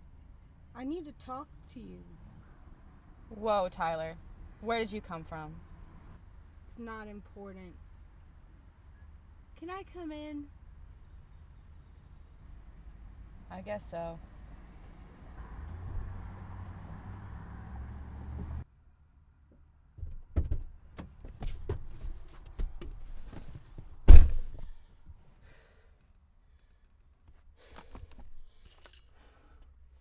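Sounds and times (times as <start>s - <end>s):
door shutting thud: 20.0s - 21.8s, 24.1s - 24.7s
door clicks and knocks: 20.0s - 21.9s, 24.1s - 24.7s.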